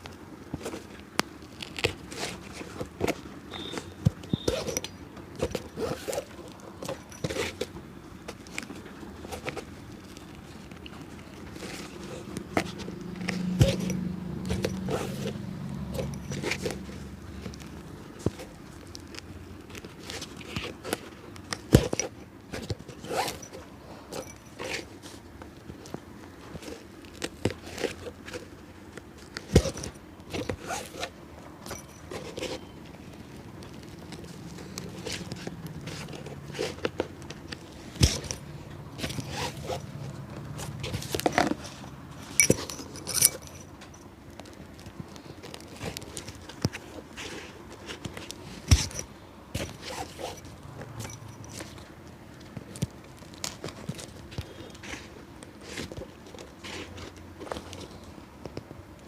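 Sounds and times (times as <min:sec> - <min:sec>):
scraping on shoe: 0:00.3 - 0:07.7, 0:19.9 - 0:44.1, 0:44.9 - 0:51.9
passing vehicle engine hum: 0:12.1 - 0:18.0
scrapes and taps on a shoe: 0:31.7 - 0:51.5.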